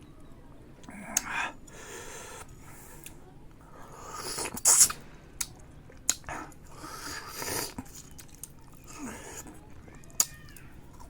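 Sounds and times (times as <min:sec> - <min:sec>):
loud sharp hissing: 0:04.0 - 0:05.0
person chewing wetly: 0:04.2 - 0:11.0.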